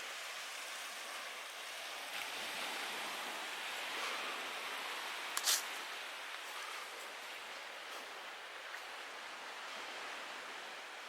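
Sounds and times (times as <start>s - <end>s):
waves washing on shore: 0.0s - 11.0s
sharp scrape or rustle: 5.4s - 5.8s.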